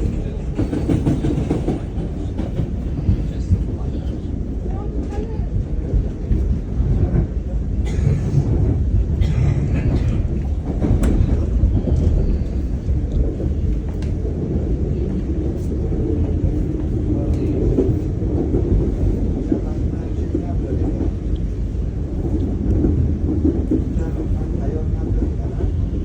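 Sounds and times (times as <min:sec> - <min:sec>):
electric train rumble: 0:00.0 - 0:26.0.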